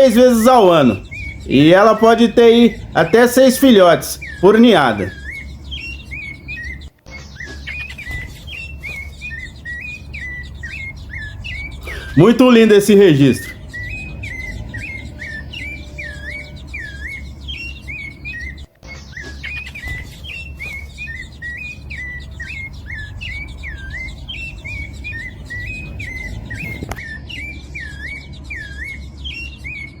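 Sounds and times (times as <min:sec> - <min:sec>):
songbird chirping whistles: 0:00.0 - 0:30.0
low rumble: 0:13.5 - 0:18.6.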